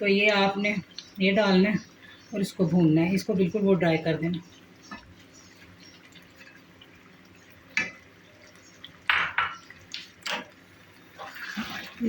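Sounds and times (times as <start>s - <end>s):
spoon knocking and scraping a pot: 9.0s - 9.7s.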